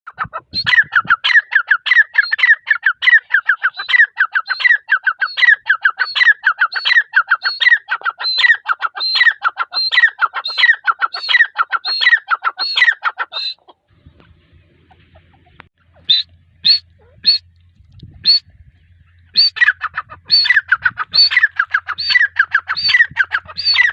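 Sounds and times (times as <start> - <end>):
francolin calling: 14.9 - 23.9.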